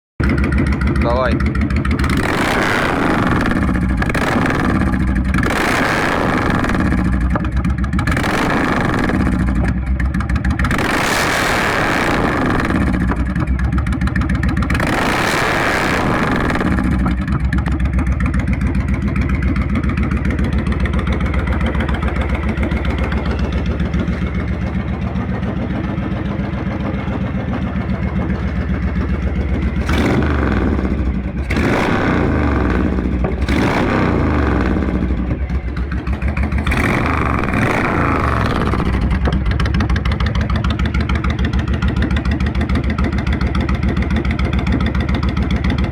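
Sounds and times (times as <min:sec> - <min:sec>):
motorcycle engine throttle blips: 0:00.2 - 0:45.9.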